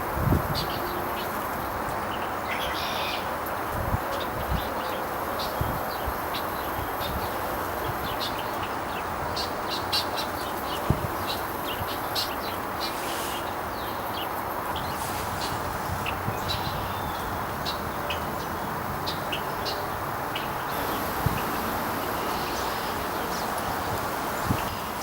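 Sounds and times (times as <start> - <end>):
steady background hiss: 6.1 - 25.0
small birds chirping: 8.1 - 25.0.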